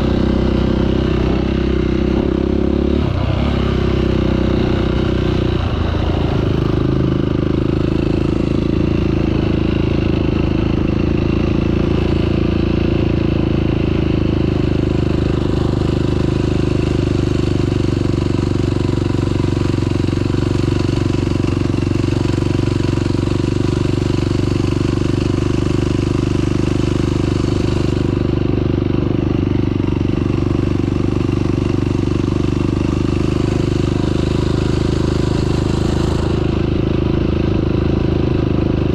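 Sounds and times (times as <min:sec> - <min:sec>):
off-road vehicle engine running: 0:00.0 - 0:38.9.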